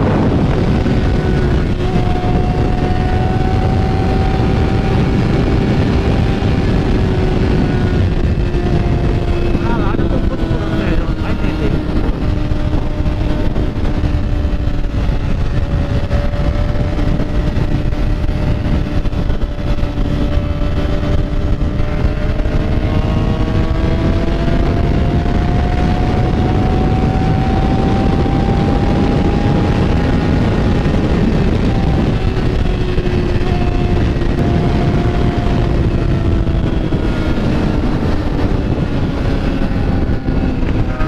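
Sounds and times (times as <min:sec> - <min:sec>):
dense low rumble: 0:00.0 - 0:41.0
motorcycle engine running: 0:00.0 - 0:41.0.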